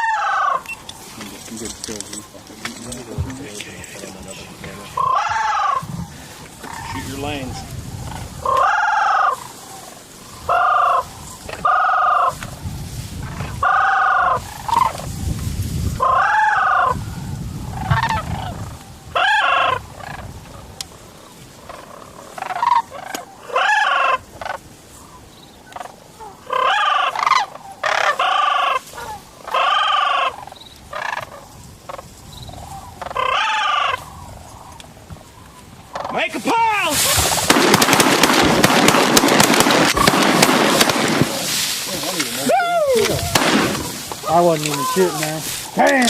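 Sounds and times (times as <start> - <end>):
waterfowl call notes: 0.0 - 1.0, 4.8 - 12.4, 13.6 - 15.0, 19.2 - 20.3, 21.1 - 37.6.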